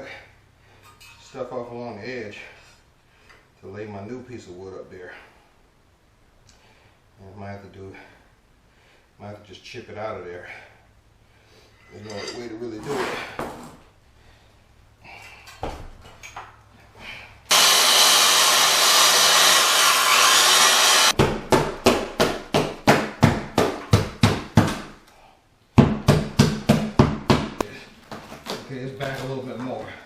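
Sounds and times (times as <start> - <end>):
hammer chipping wood: 17.5 - 24.9, 25.8 - 27.6.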